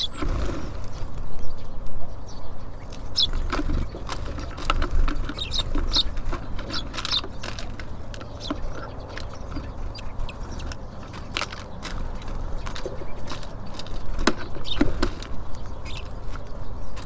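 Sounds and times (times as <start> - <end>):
short high bird chirps: 0.0 - 0.2
birds pecking and tapping: 0.0 - 17.0.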